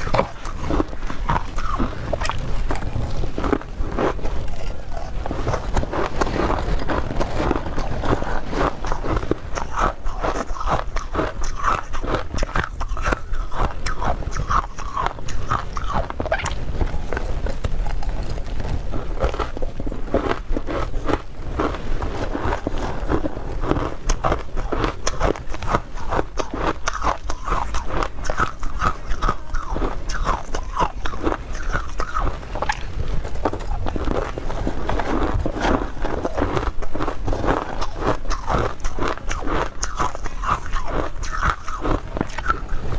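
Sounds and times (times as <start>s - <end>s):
person chewing ice: 0.0s - 42.9s.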